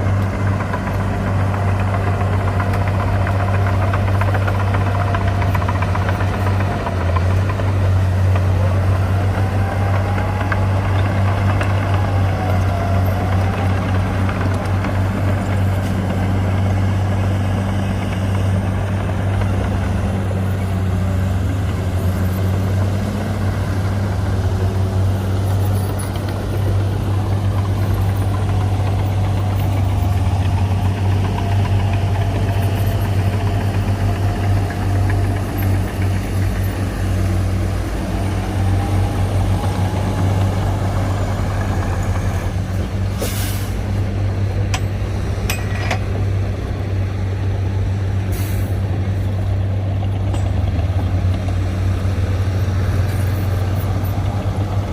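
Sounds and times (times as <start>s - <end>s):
bulldozer diesel engine running: 0.0s - 54.9s
metallic clanks: 44.7s - 46.1s.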